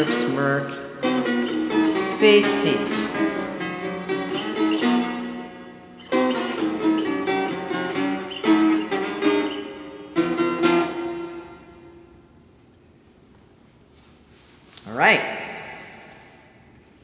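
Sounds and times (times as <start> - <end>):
guitar chords strummed: 0.0 - 12.3.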